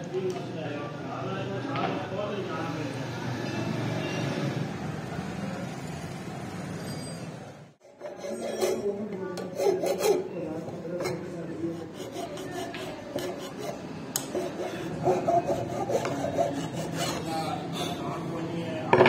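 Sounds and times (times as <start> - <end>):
scraping on steel knife blade: 7.9 - 17.5.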